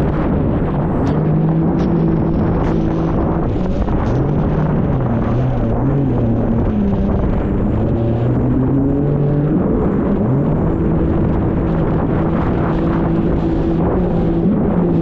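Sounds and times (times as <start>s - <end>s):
jet ski engine running: 0.0s - 15.0s
wind on microphone: 0.0s - 15.0s.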